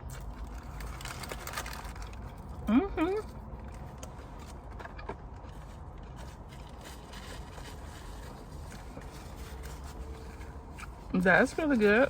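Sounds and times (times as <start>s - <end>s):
person chewing a sandwich: 0.0s - 11.1s
low background hum: 0.0s - 12.0s.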